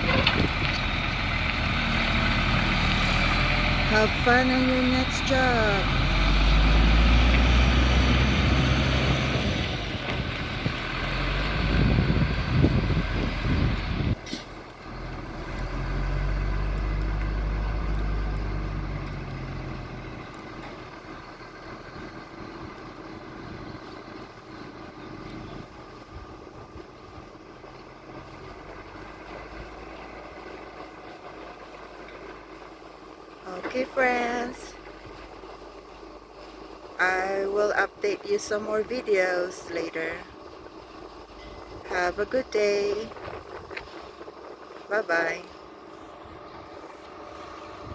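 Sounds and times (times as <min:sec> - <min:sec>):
wind on microphone: 0:00.0 - 0:00.8, 0:09.1 - 0:14.4
truck diesel engine driving off: 0:00.0 - 0:47.9.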